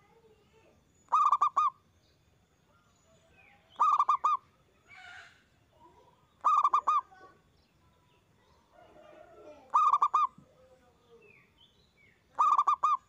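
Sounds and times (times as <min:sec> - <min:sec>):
dove cooing: 0:01.1 - 0:01.8, 0:03.8 - 0:04.4, 0:06.4 - 0:07.2, 0:08.8 - 0:10.4, 0:12.4 - 0:13.0.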